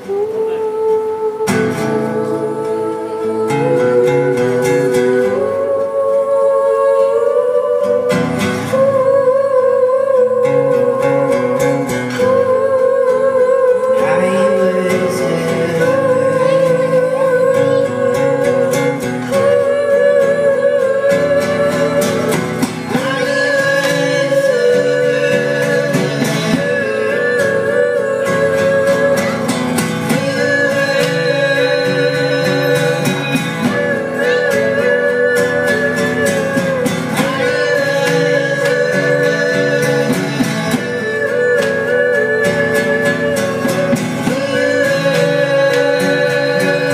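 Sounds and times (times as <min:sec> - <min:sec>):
long wavering held melody notes: 0:00.0 - 0:46.9
person singing: 0:00.0 - 0:46.9
plucked guitar: 0:00.0 - 0:46.9.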